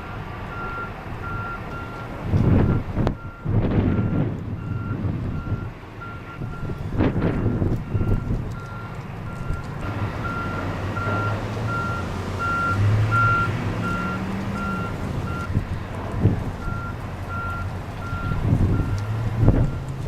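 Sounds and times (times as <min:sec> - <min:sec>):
diesel engine running: 0:00.0 - 0:20.0
reversing alarm beeping: 0:00.5 - 0:06.8, 0:07.4 - 0:15.5, 0:16.6 - 0:19.8
wind thumping on microphone: 0:02.2 - 0:10.2, 0:15.0 - 0:20.0.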